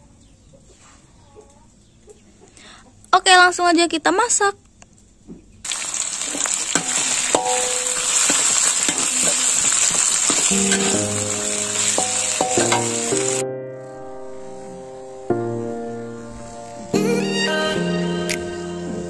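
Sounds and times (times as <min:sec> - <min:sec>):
food sizzling in hot oil: 0:05.7 - 0:13.4
metal spatula scraping a wok: 0:06.3 - 0:13.4
background music: 0:10.4 - 0:19.0.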